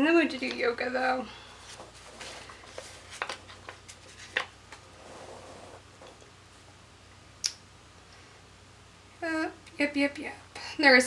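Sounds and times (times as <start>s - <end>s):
paper rustling: 1.6s - 5.8s.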